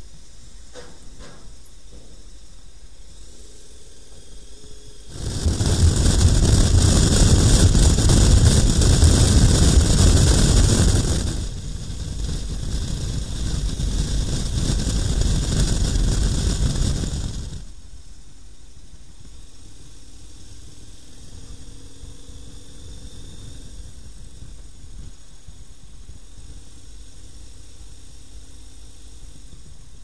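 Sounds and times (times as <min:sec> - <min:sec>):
motorcycle road noise: 0:00.8 - 0:18.2, 0:18.8 - 0:30.0
rushing wind: 0:04.9 - 0:18.1, 0:19.1 - 0:30.0.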